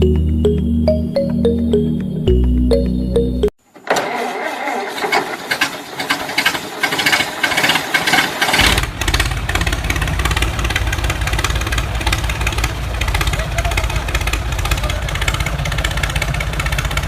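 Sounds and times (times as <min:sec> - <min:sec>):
deeper buzz: 0:08.6 - 0:16.0.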